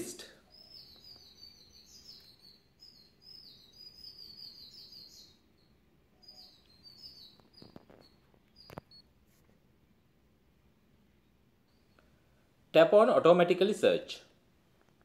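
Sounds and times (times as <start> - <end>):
faint bird chirping: 0.0 - 13.1.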